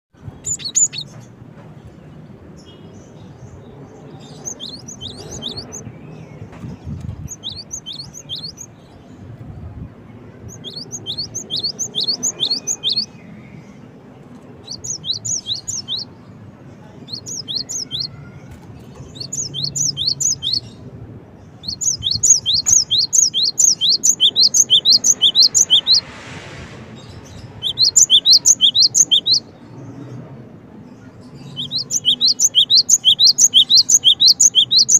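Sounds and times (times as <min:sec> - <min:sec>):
bird singing high notes: 0:10.5 - 0:13.2, 0:21.6 - 0:26.2, 0:27.0 - 0:29.5, 0:31.5 - 0:34.9.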